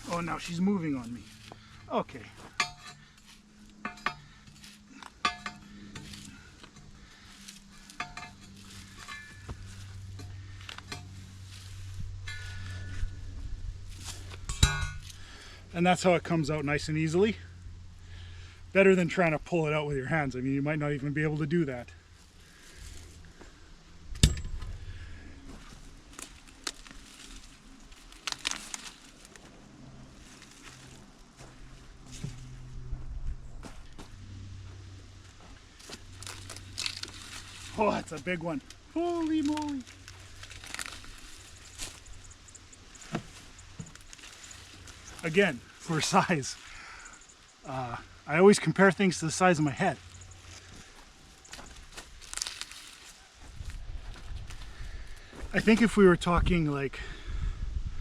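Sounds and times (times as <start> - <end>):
faint low hum: 0.0 - 56.4
post pounder clinking on steel post: 2.4 - 7.0, 7.7 - 11.2, 12.2 - 13.2, 14.2 - 15.2, 24.1 - 24.8.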